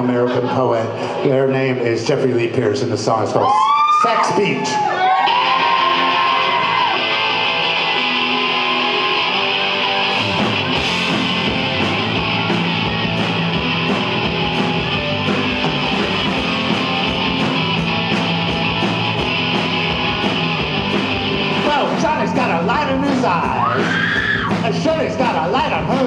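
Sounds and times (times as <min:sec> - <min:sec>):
electric guitar chords: 0:05.2 - 0:26.0
drums and bass beat: 0:10.0 - 0:26.0.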